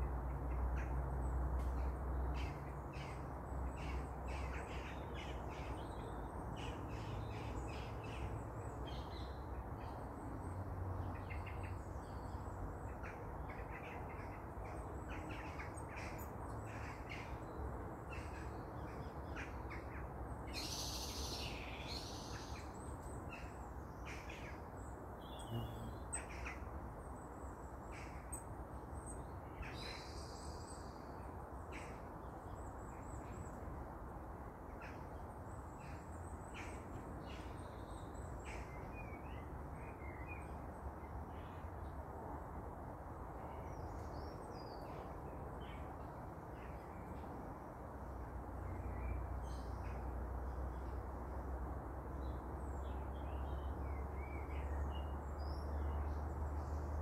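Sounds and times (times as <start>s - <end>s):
wild birds chirping: 11.0s - 33.6s.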